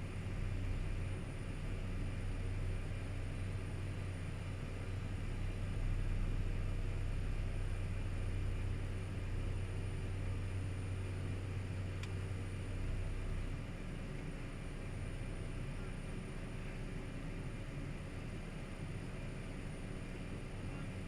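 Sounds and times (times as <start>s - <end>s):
turboprop engine drone: 0.0s - 21.0s
faint tick: 12.0s - 12.2s.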